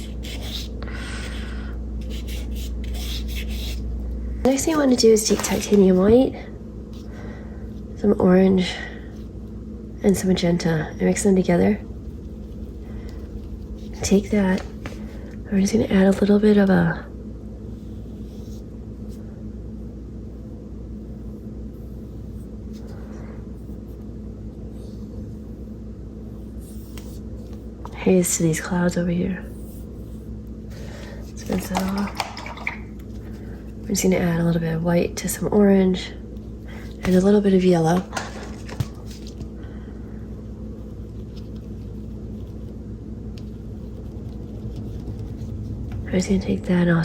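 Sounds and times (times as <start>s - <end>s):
low background hum: 0.0s - 47.0s
soft brushing of paint: 11.6s - 15.3s, 17.6s - 19.3s, 20.3s - 28.2s, 29.3s - 34.3s, 36.3s - 46.4s.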